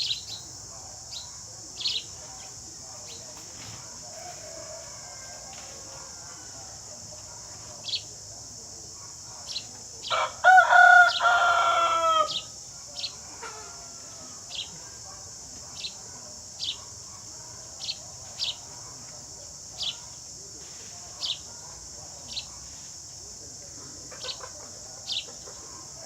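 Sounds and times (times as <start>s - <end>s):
sparrows chirping: 0.0s - 2.2s, 7.8s - 8.1s, 8.9s - 10.2s, 10.8s - 13.3s, 14.4s - 14.8s, 15.7s - 19.0s, 19.7s - 20.2s, 21.2s - 22.6s, 24.2s - 25.8s
insects buzzing: 0.0s - 26.0s
rooster crowing: 4.1s - 6.3s, 10.1s - 12.5s.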